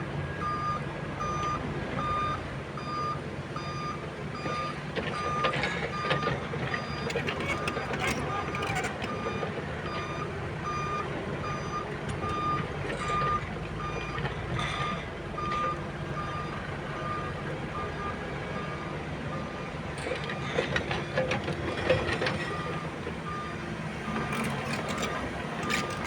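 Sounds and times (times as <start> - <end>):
diesel engine rumbling: 0.0 - 26.0
backup alarm beeping: 0.4 - 19.6.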